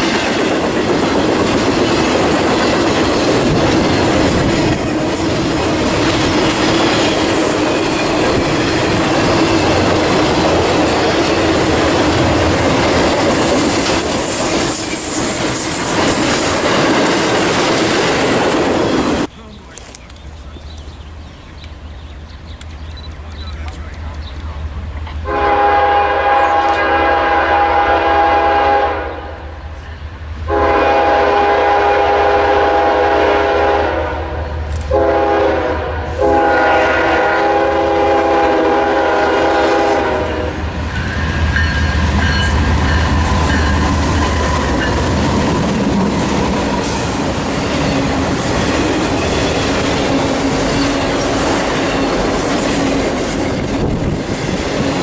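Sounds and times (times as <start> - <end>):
train passing rumble: 0.0 - 55.0
locomotive air horn: 25.2 - 29.6, 30.5 - 40.6.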